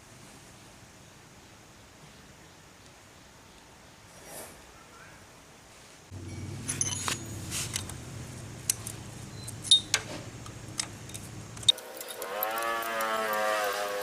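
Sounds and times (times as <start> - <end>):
low steady hum: 6.1 - 11.8
metallic clinks and clicks: 6.2 - 8.0, 8.6 - 13.5.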